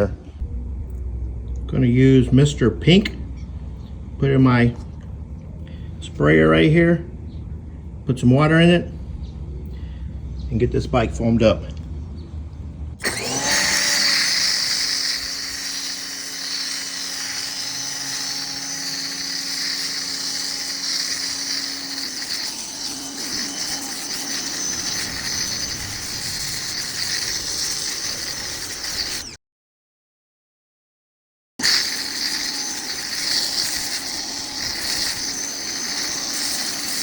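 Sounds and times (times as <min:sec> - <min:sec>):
sprayer hissing: 0:13.0 - 0:29.4, 0:31.6 - 0:37.0.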